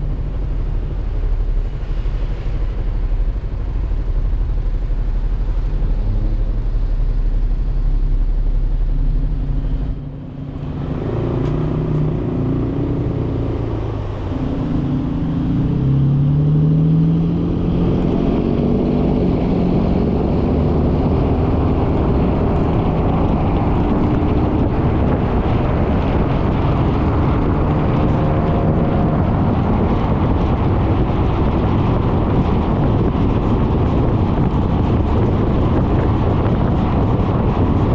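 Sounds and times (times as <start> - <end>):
road and wind noise: 0.0 - 37.9.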